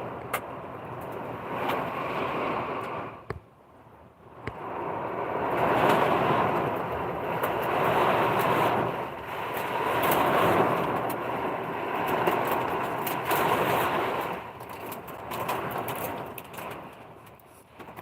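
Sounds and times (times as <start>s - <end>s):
heavy rain pouring: 4.6s - 18.0s.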